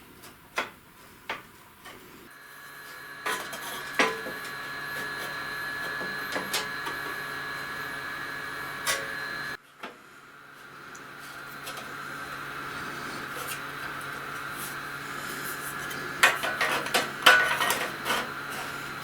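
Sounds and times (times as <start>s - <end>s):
small electric motor whining: 2.2s - 9.6s, 10.2s - 19.0s.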